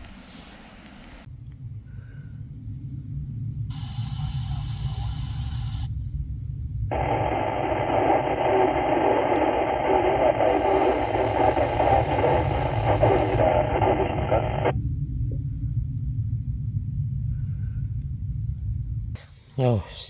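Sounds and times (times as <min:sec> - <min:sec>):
low rumble: 0:00.0 - 0:19.6
radio static hissing: 0:03.7 - 0:05.9, 0:06.9 - 0:14.8.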